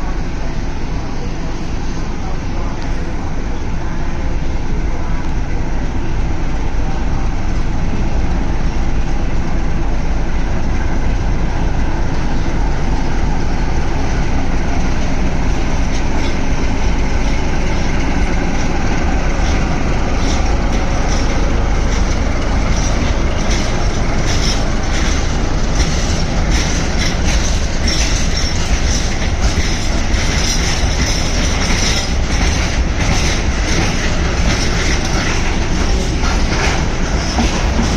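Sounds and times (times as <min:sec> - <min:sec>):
freight train rumbling past: 0:00.0 - 0:37.9
wheels clacking over rail joints: 0:11.8 - 0:37.9.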